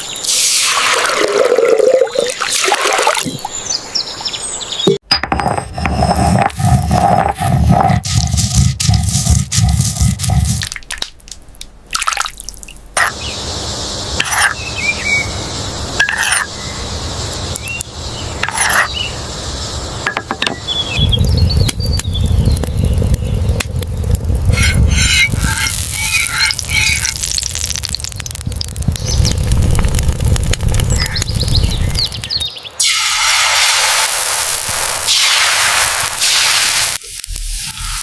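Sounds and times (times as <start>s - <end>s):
water hiss: 0.0s - 3.5s, 32.8s - 38.0s
bird chirps: 13.1s - 23.6s, 30.8s - 32.8s
low rumble: 19.0s - 32.5s.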